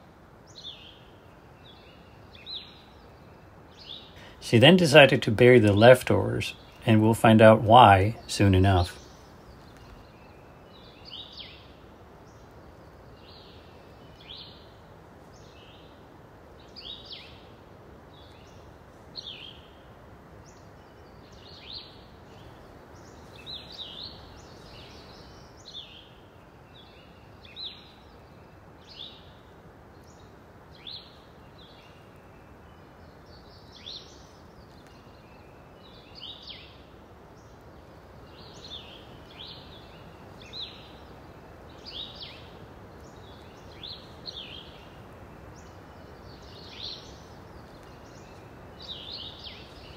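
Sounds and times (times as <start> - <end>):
outdoor background hiss: 0.0 - 49.9
birds calling: 1.6 - 15.9, 18.1 - 29.4, 30.0 - 49.9.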